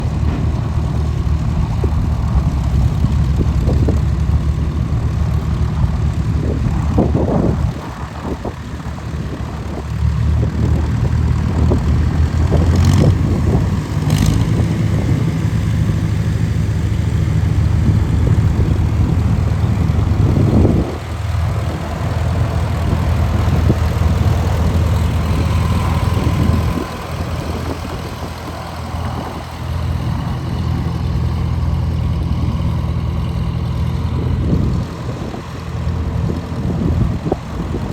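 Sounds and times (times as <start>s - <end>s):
tractor engine droning: 0.0s - 37.9s.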